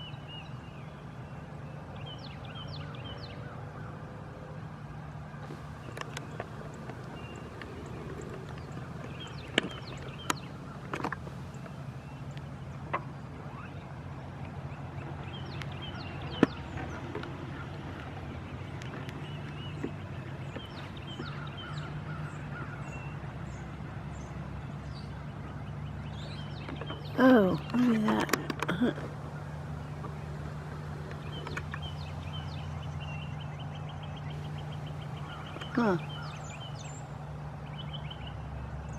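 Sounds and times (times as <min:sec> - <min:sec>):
wheelchair motor humming: 0:05.4 - 0:11.8, 0:27.1 - 0:32.9
birds chirping: 0:05.4 - 0:38.9.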